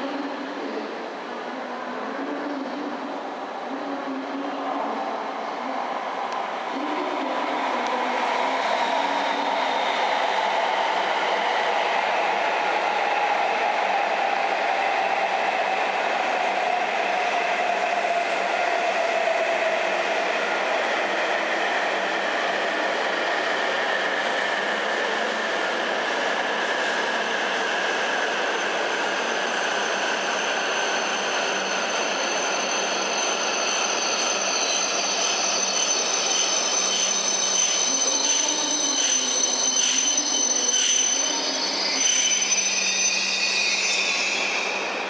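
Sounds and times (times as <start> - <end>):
high brake squeal: 28.6 - 45.0.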